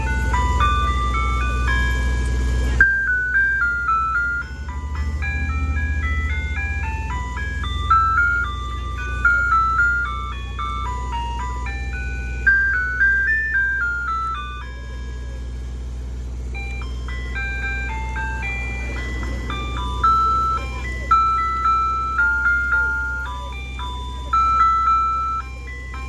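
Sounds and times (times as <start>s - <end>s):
ice cream truck jingle: 0.0s - 26.0s
truck engine running: 0.0s - 26.0s.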